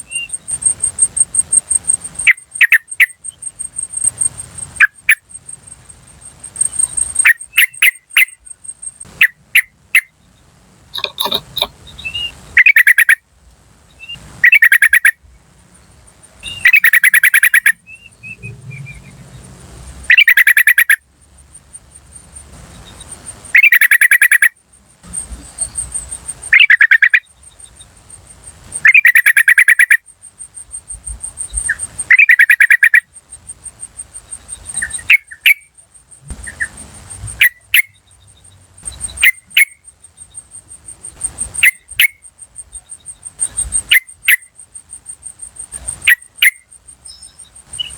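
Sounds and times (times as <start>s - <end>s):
bird chattering calls: 0.0s - 5.3s, 6.6s - 10.1s, 10.9s - 13.2s, 14.0s - 15.2s, 16.4s - 18.9s, 20.1s - 21.0s, 22.9s - 27.4s, 28.7s - 38.1s, 38.8s - 39.9s, 40.8s - 47.9s
fast high-pitched ticking: 0.0s - 10.1s.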